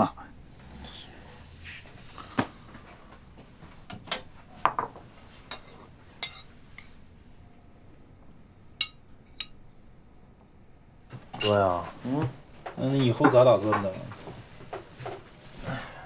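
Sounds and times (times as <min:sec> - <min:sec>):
dishes and utensils clinking: 0:03.9 - 0:06.9, 0:11.1 - 0:11.9.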